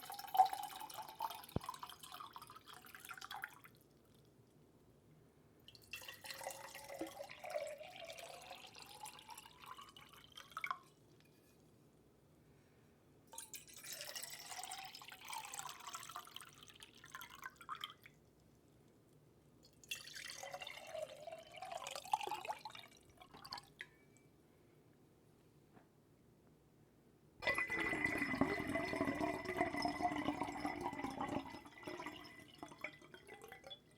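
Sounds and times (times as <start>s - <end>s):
water pouring into a vessel: 0.0s - 3.9s, 5.7s - 10.9s, 13.4s - 18.2s, 19.7s - 23.9s, 27.4s - 33.9s.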